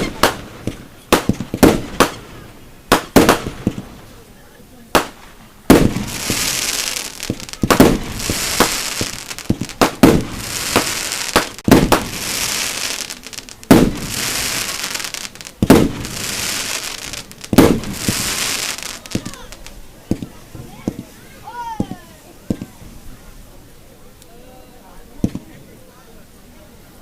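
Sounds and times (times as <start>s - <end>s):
firework shells bursting: 0.0s - 4.2s, 5.0s - 20.3s
firework hiss: 0.0s - 21.2s.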